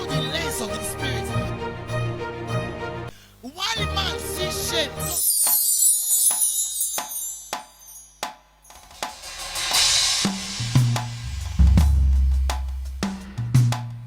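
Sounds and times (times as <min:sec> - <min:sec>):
cymbal wash: 0:05.4 - 0:13.4
drum kit hits: 0:07.6 - 0:14.0
bass and kick drum: 0:10.3 - 0:14.0.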